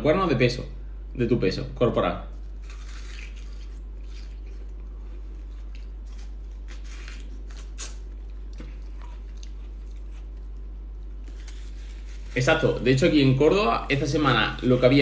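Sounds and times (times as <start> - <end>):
steady low hum: 0.0 - 15.0
watermelon being chewed: 2.3 - 13.2.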